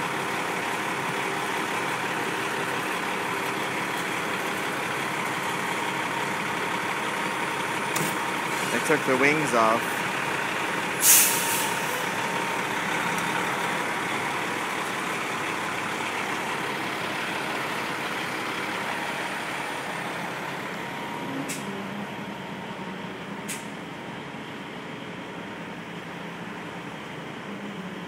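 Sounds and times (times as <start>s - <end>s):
truck engine running: 0.0s - 28.0s
air brake hiss: 11.0s - 12.0s.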